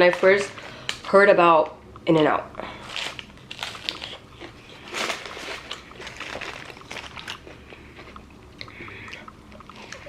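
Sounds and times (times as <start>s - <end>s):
person chewing food: 2.9s - 10.0s.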